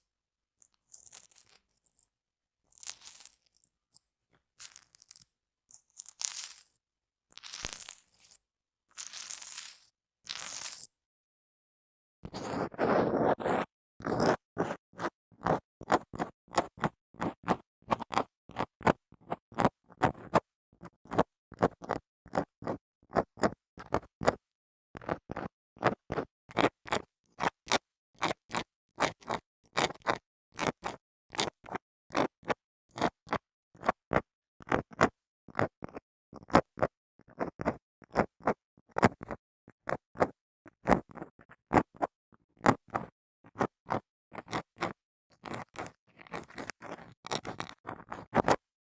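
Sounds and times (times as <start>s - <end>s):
comb scraping microphone: 12.2s - 14.8s.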